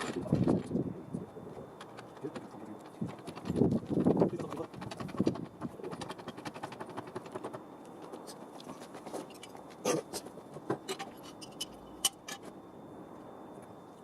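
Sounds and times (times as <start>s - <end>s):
faint high whine: 0.0s - 14.0s.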